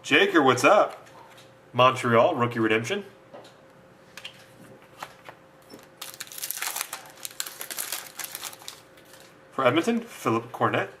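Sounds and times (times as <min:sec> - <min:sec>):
card pack packaging crinkling: 0:05.8 - 0:09.4.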